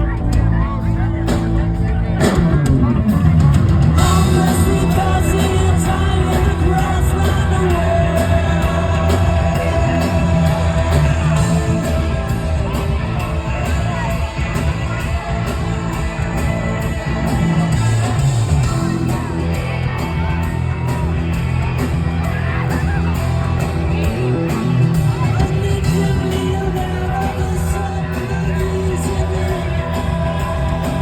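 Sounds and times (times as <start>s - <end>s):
live rock band playing: 0.0s - 31.0s
person singing: 4.0s - 20.3s, 25.1s - 31.0s.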